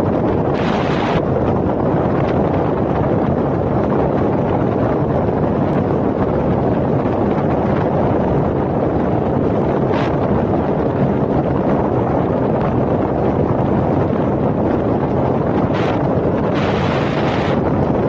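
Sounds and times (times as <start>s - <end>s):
wind buffeting microphone: 0.0s - 18.0s
vehicle engine and road noise: 15.2s - 18.0s.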